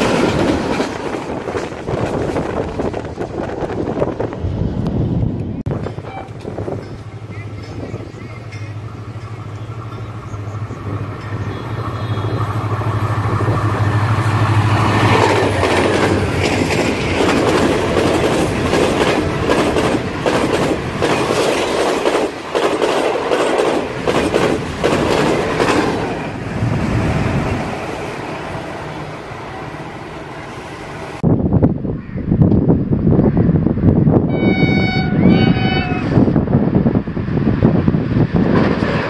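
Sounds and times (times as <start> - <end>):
train wheels clattering on rails: 0.0 - 4.3, 5.6 - 27.1
diesel locomotive engine drone: 0.0 - 39.0.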